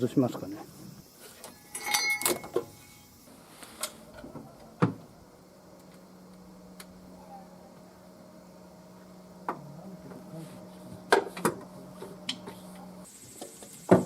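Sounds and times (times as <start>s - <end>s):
faint steady hum: 0.0s - 14.0s
metal tools clinking: 1.5s - 2.8s.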